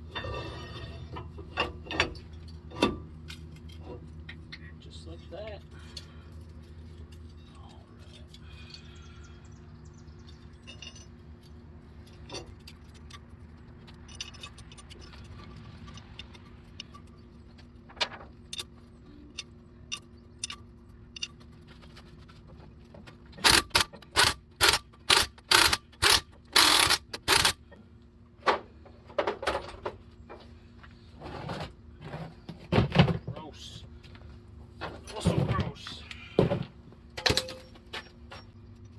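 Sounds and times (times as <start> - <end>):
tools and parts clinking: 0.1 - 4.6, 10.2 - 22.4, 23.2 - 27.8, 37.1 - 38.9
power tool bursts: 23.4 - 27.6.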